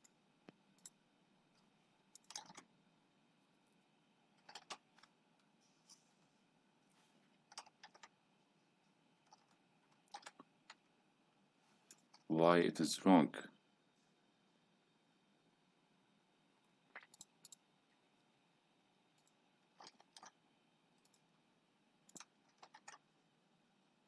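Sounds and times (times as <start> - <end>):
faint keyboard keystrokes and clicks: 0.0 - 2.7, 4.3 - 6.0, 7.3 - 8.2, 9.2 - 10.9, 11.8 - 12.3, 16.9 - 17.6, 19.1 - 20.4, 21.0 - 21.3, 22.0 - 23.1.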